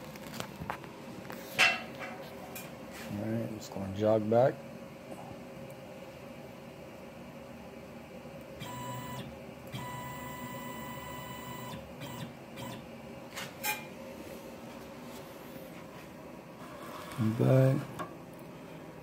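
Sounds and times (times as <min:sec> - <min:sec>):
stepper motor whining: 0:08.6 - 0:12.8.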